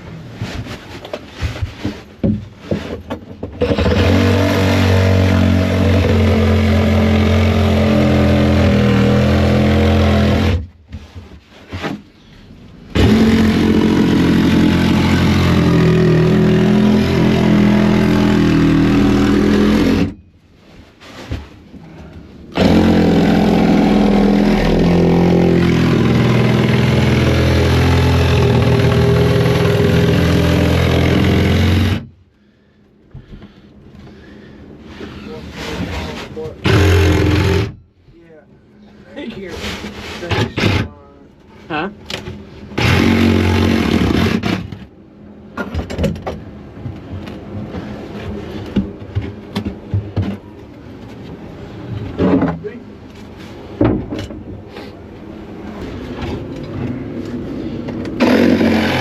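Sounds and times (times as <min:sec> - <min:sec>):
power saw cutting roofing: 0:03.6 - 0:10.7, 0:12.9 - 0:20.2, 0:22.5 - 0:32.1, 0:36.6 - 0:37.8, 0:40.3 - 0:40.9, 0:42.8 - 0:44.9, 0:58.1 - 0:59.0.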